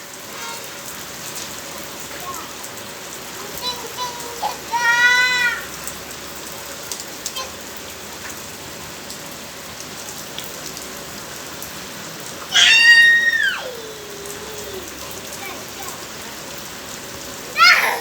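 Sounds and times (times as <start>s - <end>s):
rain falling: 0.0s - 18.0s
high-pitched drawn-out cry: 4.7s - 5.7s, 12.5s - 14.9s, 17.6s - 18.0s.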